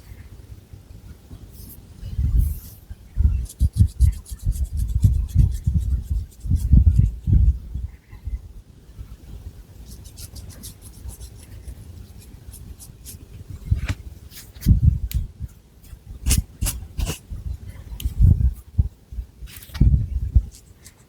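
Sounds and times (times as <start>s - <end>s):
fingernails scratching hair: 3.4s - 7.4s, 9.9s - 13.2s.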